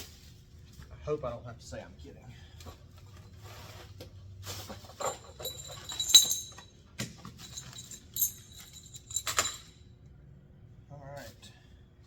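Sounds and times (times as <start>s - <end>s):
small metal parts clinking: 5.0s - 9.8s.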